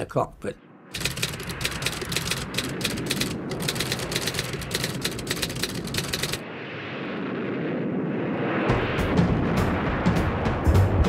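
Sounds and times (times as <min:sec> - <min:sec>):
typewriter keys clattering: 0:01.0 - 0:06.4.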